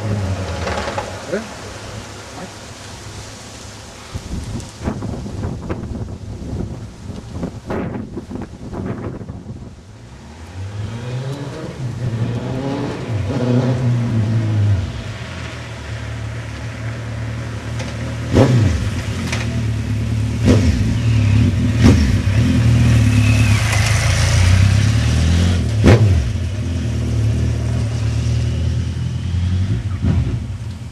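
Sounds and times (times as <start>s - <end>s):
motorcycle engine revving: 0.0s - 1.8s, 10.6s - 15.6s, 17.8s - 30.9s
exhaust cracks: 0.0s - 2.6s.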